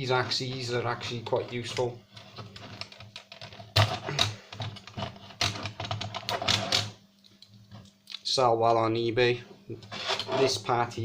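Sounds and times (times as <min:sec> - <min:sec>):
disc drive parts clicking and clattering: 0:01.2 - 0:06.9.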